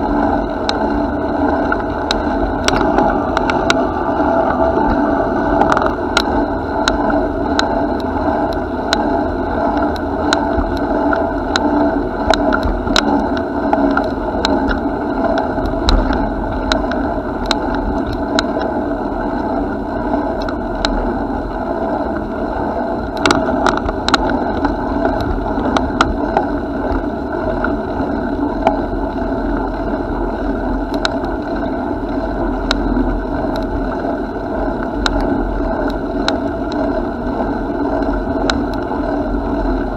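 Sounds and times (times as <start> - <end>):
bicycle rolling noise: 0.0 - 39.9
small clicks and rattles: 5.6 - 18.7, 23.0 - 28.9, 30.7 - 34.0, 34.7 - 39.9.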